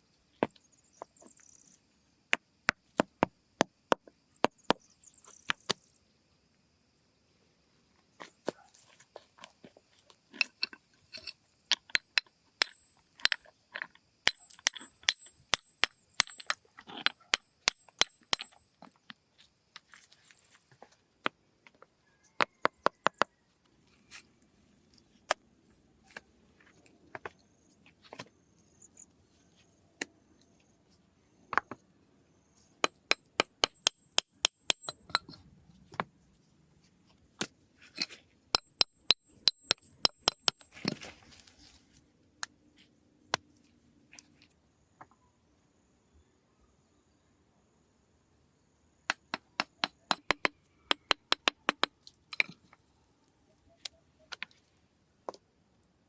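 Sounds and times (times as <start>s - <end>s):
hand tool knocking with metallic ring: 10.4s - 19.0s, 22.4s - 23.3s, 32.8s - 35.4s, 38.0s - 41.0s, 49.1s - 52.6s.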